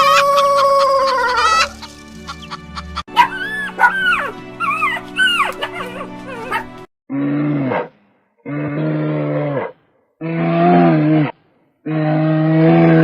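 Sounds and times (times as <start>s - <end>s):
background music: 0.0s - 6.9s.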